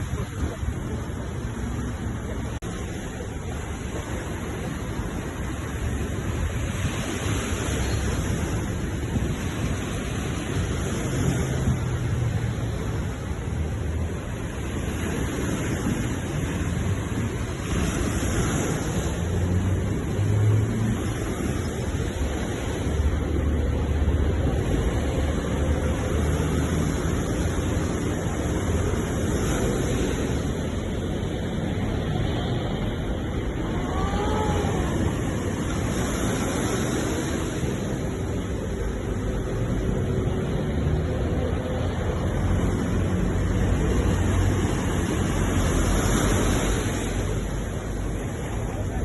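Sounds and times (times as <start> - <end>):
sea waves washing onto shore: 0.0 - 49.0.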